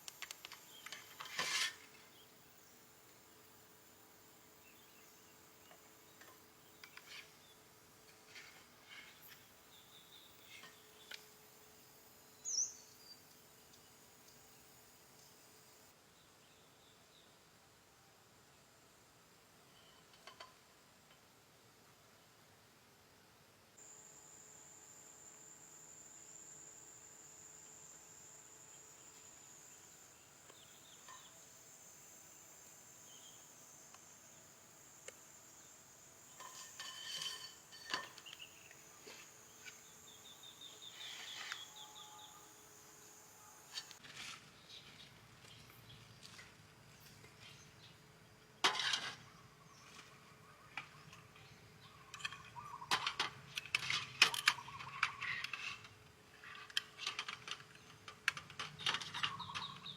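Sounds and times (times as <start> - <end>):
faint jungle background: 0.0 - 59.9
clinking and clattering dishes: 36.4 - 38.3.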